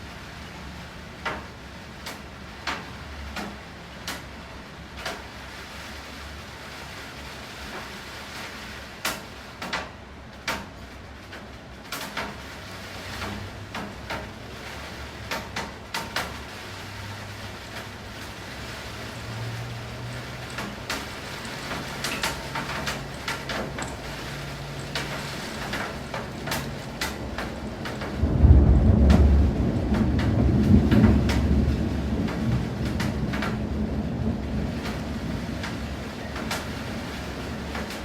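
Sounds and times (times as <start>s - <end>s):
rain falling: 0.0s - 38.0s
raindrops ticking: 1.1s - 5.4s, 7.7s - 38.0s
loud low thunder rumble: 18.6s - 36.3s.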